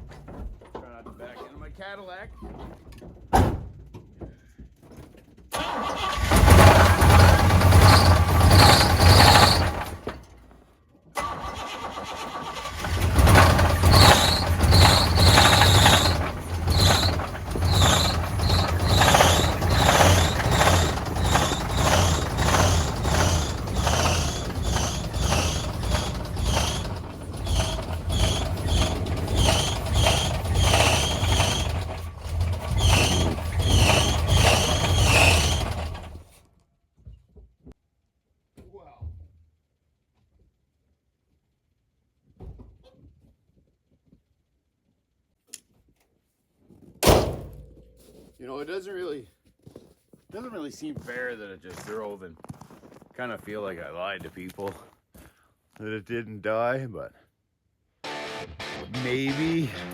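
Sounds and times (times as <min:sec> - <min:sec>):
damaged car engine running roughly: 0:05.6 - 0:10.1, 0:11.2 - 0:36.2.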